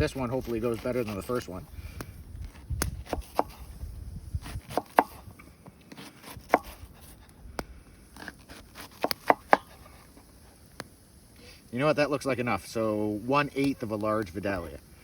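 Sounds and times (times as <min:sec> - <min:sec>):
knife chopping on cutting board: 0:03.0 - 0:03.6, 0:04.5 - 0:05.2, 0:06.2 - 0:06.9, 0:08.5 - 0:09.7.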